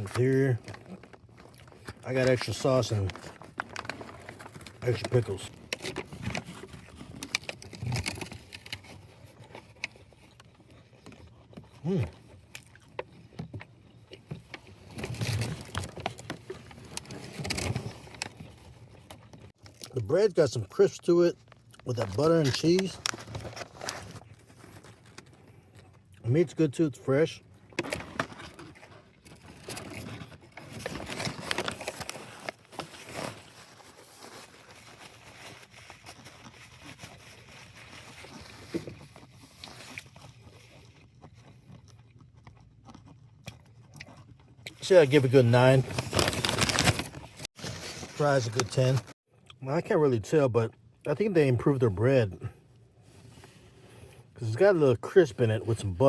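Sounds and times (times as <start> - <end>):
chewing food: 3.2 - 20.0, 36.0 - 44.8.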